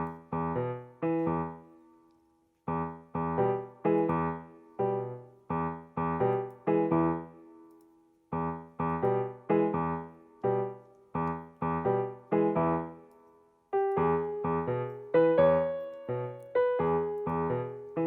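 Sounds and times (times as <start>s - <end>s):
gentle piano chords: 0.0s - 18.0s.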